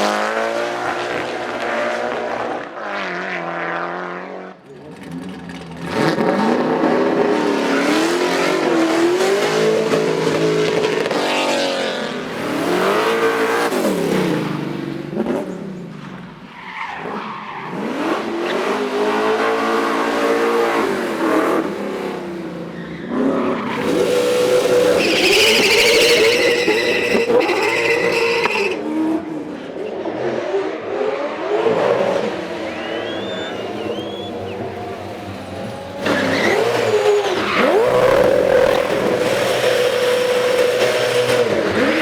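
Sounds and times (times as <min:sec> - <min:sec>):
race car engines revving: 0:00.0 - 0:42.0
tyres squealing: 0:23.7 - 0:28.8, 0:33.0 - 0:42.0.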